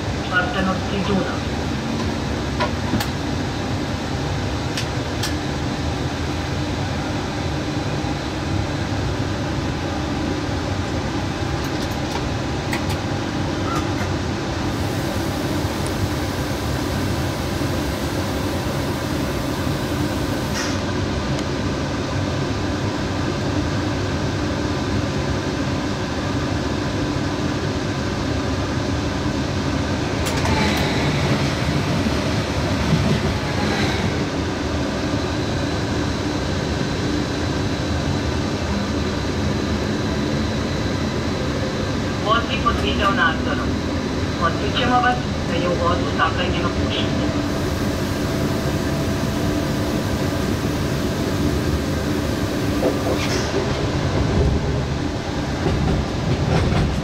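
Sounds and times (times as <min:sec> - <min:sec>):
train cab rumble and hum: 0:00.0 - 0:57.0
train wheel clatter: 0:47.6 - 0:54.9, 0:55.5 - 0:57.0.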